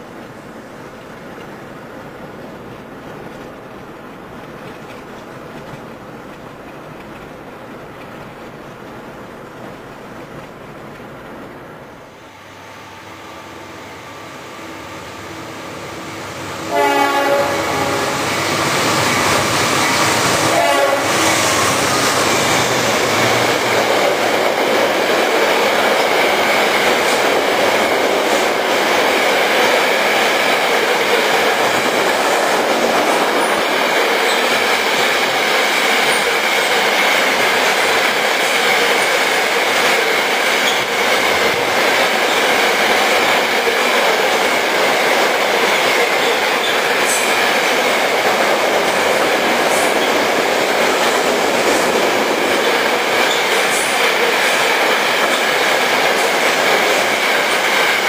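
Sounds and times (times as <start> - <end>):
train horn: 12.4 - 18.8, 20.3 - 21.6.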